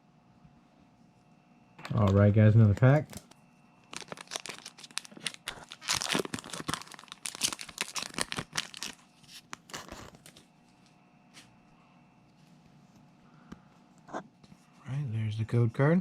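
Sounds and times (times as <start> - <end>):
foil pack tearing and crinkling: 2.9 - 10.4.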